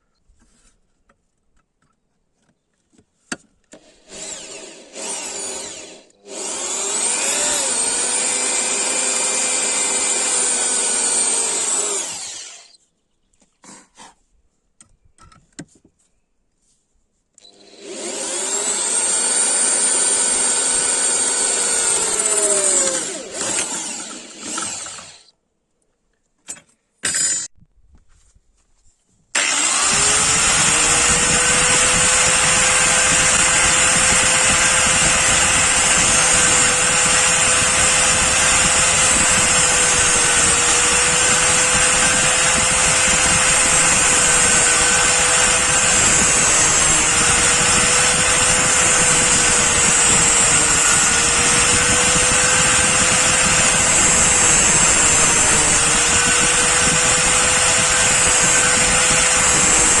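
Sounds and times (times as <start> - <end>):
electric grinder whining: 3.8 - 12.8, 17.4 - 25.3, 29.4 - 60.0.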